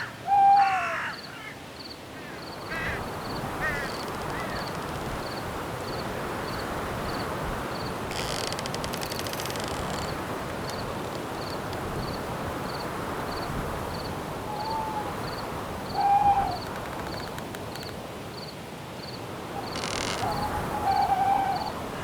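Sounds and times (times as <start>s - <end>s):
owl hooting: 0.0s - 1.5s, 14.5s - 16.8s, 20.2s - 22.0s
cricket chirping: 1.1s - 21.7s
wind hiss: 2.5s - 22.0s.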